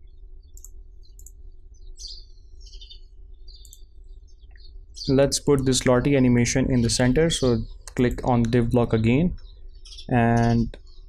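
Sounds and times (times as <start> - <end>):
faint high bird chirps: 0.0 - 11.0
steady low hum: 0.0 - 11.0
computer mouse clicks: 0.6 - 1.4, 3.5 - 3.9.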